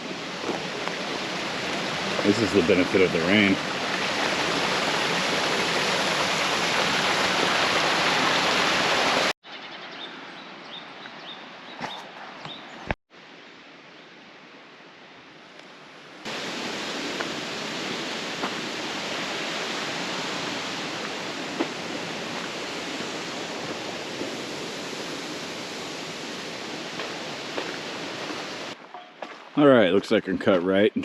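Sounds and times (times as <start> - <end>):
stream water rushing: 0.0 - 9.3, 16.3 - 28.8.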